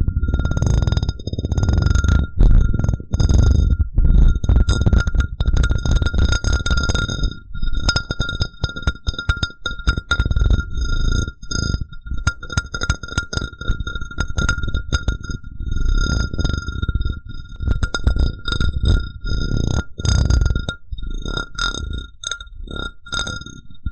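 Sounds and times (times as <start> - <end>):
glass cup tapping and ringing: 0.0 - 10.9, 12.2 - 13.6, 14.2 - 15.3, 17.6 - 19.0.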